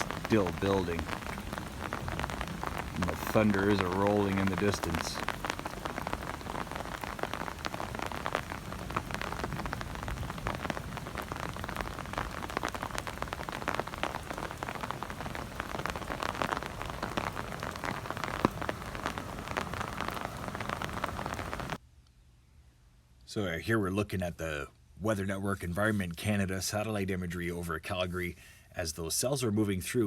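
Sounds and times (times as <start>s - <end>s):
rain drops pattering: 0.0s - 21.8s.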